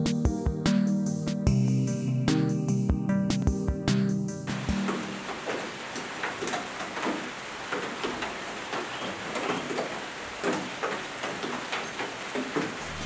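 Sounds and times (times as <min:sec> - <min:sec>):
rain falling: 0:04.5 - 0:13.0
raindrops ticking on surfaces: 0:04.5 - 0:13.0.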